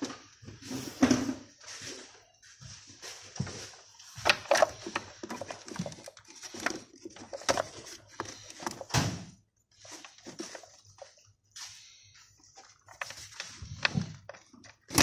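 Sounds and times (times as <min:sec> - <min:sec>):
clicks and knocks of engine parts: 0:12.9 - 0:15.0.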